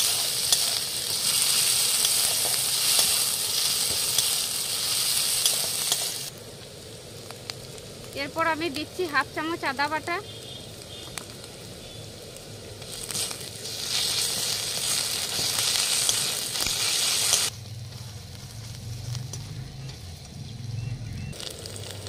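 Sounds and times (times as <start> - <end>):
onions sizzling in hot oil: 0.0 - 22.0.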